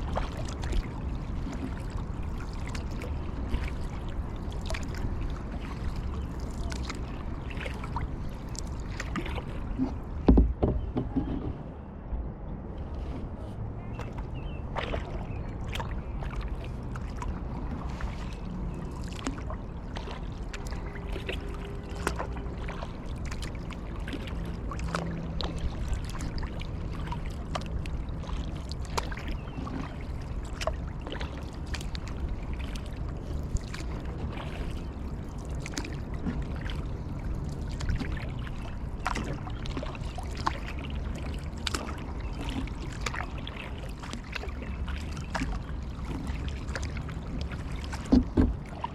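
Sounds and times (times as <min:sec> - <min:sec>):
paddle splashing in water: 0:00.0 - 0:11.9, 0:12.8 - 0:48.9
steady low rumble: 0:00.0 - 0:48.9
water trickling: 0:14.0 - 0:48.9.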